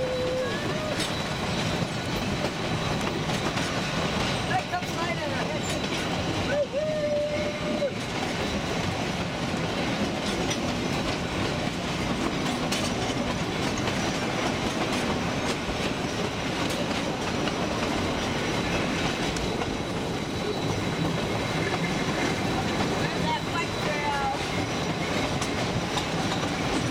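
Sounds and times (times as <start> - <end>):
train wheels rumbling on rails: 0.0 - 26.9
wheel clicks over rail joints: 10.0 - 19.7.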